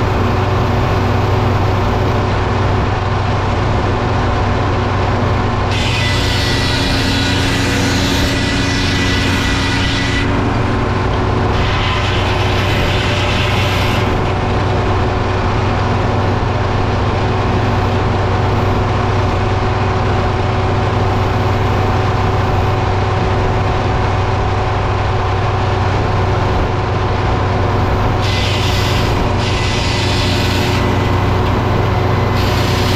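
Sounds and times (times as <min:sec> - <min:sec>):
sawmill engine drone: 0:00.0 - 0:32.9.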